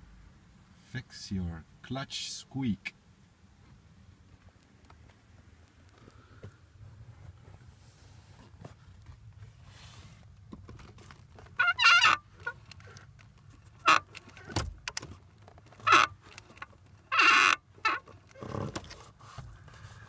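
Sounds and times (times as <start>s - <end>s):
clutch pedal squeaking: 10.8s - 19.3s.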